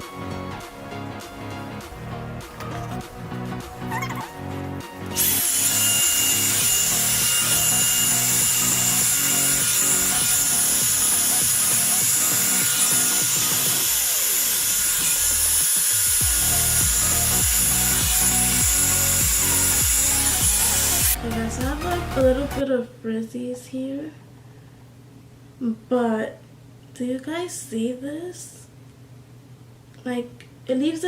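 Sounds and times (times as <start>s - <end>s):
background music: 0.0s - 22.6s
hair dryer brush running: 5.1s - 21.3s.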